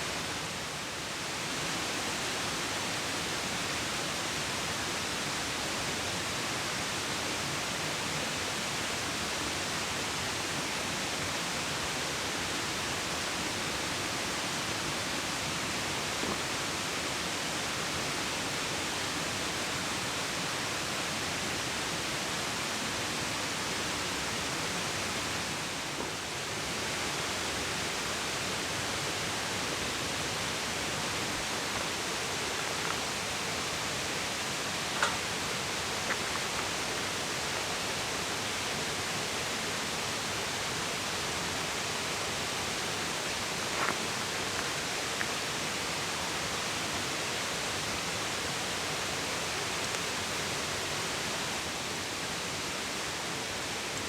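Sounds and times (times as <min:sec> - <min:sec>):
water rushing: 0:12.7 - 0:54.0.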